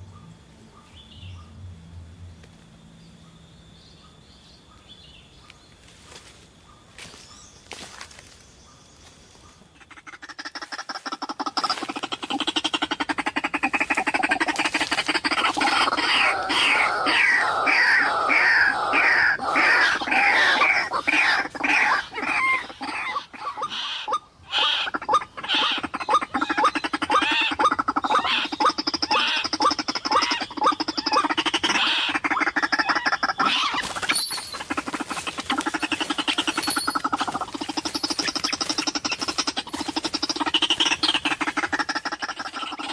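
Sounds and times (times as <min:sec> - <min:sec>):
waterhen croaking call: 0:09.7 - 0:42.9.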